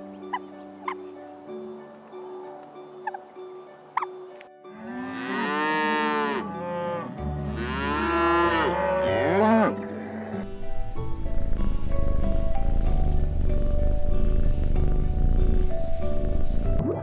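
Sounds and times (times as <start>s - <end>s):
cow mooing: 4.0s - 9.8s.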